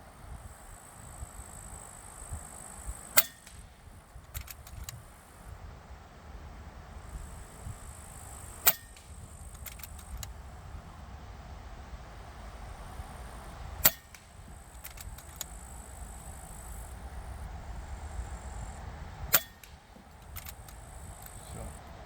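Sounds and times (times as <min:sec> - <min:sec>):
wind rumble on microphone: 0:00.0 - 0:22.0
air rifle shots: 0:03.1 - 0:04.9, 0:08.1 - 0:10.4, 0:13.8 - 0:16.0, 0:19.2 - 0:21.5
rifle cocking clicks: 0:03.2 - 0:05.0, 0:08.7 - 0:10.4, 0:13.8 - 0:15.6, 0:19.3 - 0:21.4.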